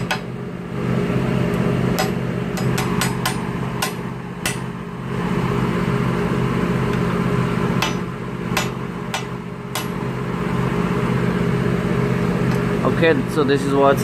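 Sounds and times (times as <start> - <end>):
steady low hum: 0.0 - 14.0
hammer tapping on metal: 2.0 - 4.7, 7.8 - 10.0.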